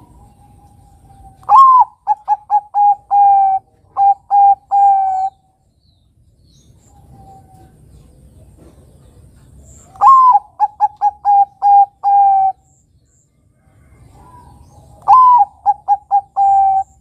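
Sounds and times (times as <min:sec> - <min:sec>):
dove cooing: 0:00.0 - 0:05.4, 0:09.8 - 0:12.6, 0:13.8 - 0:17.0.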